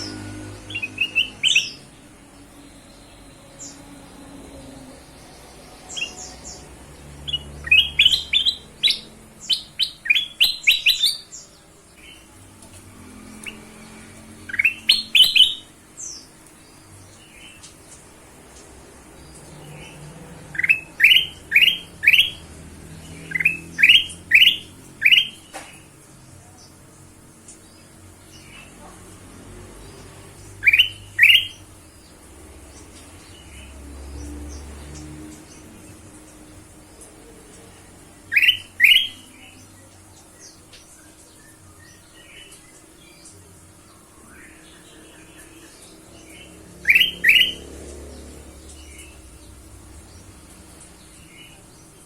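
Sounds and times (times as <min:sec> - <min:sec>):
bulbul chirping: 0:14.5 - 0:15.7, 0:46.8 - 0:47.6.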